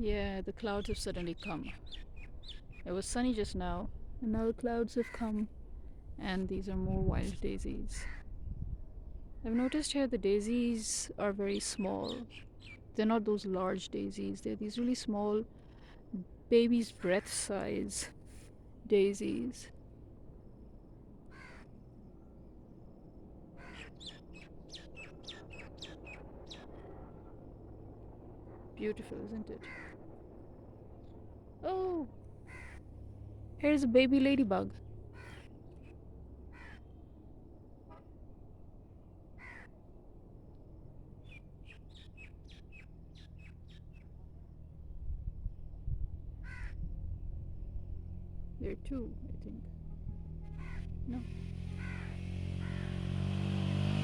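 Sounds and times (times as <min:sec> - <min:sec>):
faint outdoor background noise: 0:00.0 - 0:54.0
bird chirping: 0:00.8 - 0:03.4, 0:11.5 - 0:12.8, 0:23.7 - 0:26.9, 0:41.2 - 0:44.2
crow cawing: 0:08.0 - 0:08.2, 0:21.3 - 0:21.8, 0:23.6 - 0:24.1, 0:29.6 - 0:30.0, 0:32.4 - 0:32.9, 0:35.1 - 0:35.5, 0:36.5 - 0:37.0, 0:39.4 - 0:39.8, 0:46.4 - 0:46.8, 0:50.5 - 0:51.0, 0:51.7 - 0:53.0
low rumble: 0:42.9 - 0:53.3.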